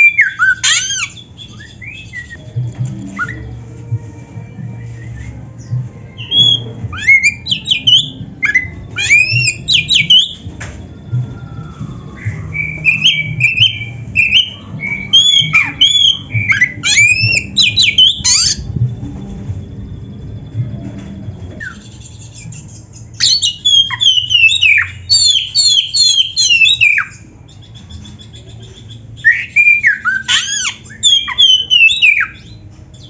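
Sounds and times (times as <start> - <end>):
bird singing: 0.0 - 2.4, 4.8 - 19.0, 19.6 - 33.0
low hum: 1.1 - 23.2.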